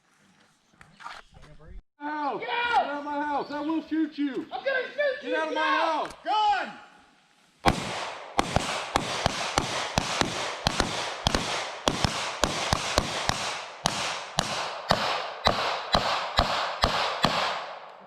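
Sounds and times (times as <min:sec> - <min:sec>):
pistols firing rapidly: 0:07.7 - 0:17.9.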